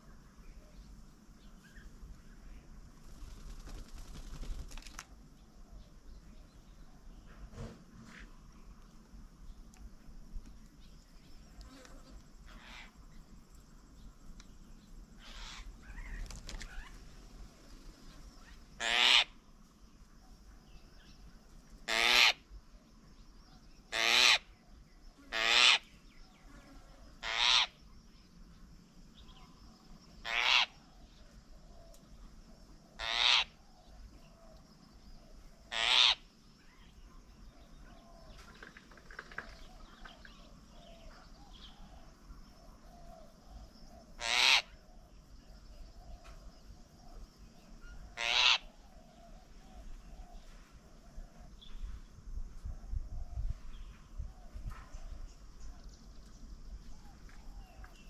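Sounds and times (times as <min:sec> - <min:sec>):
bird harsh rasping call: 0:15.2 - 0:16.1, 0:18.8 - 0:19.3, 0:25.3 - 0:25.9, 0:27.2 - 0:27.7, 0:30.2 - 0:30.8, 0:33.0 - 0:33.6, 0:35.7 - 0:36.2, 0:44.2 - 0:44.7, 0:48.2 - 0:48.7.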